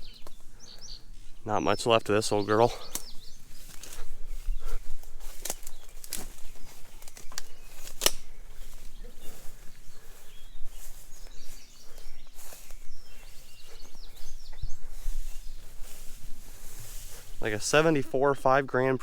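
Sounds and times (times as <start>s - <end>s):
small bird chirping: 0.0s - 1.7s, 2.3s - 17.0s
footsteps outdoors: 0.0s - 19.0s
sharp snaps: 2.8s - 4.0s, 7.0s - 8.3s.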